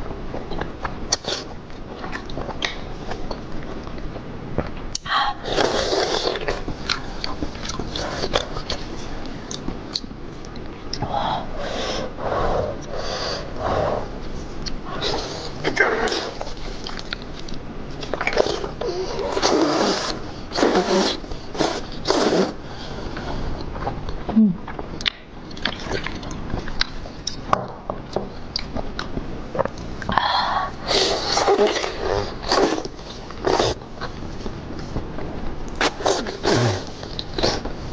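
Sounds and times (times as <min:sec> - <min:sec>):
wet mouth clicks: 0:24.7 - 0:27.4.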